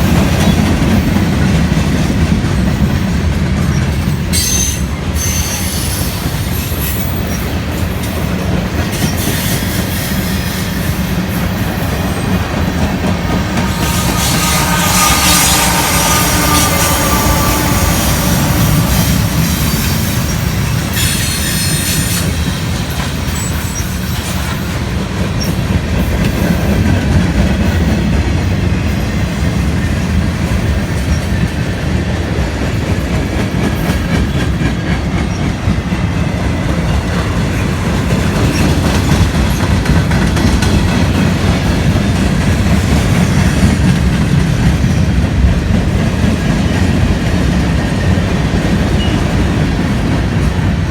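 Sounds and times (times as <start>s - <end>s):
train wheels rumbling on rail: 0.0s - 50.9s
high wheel squeal: 4.3s - 7.6s, 13.4s - 22.4s.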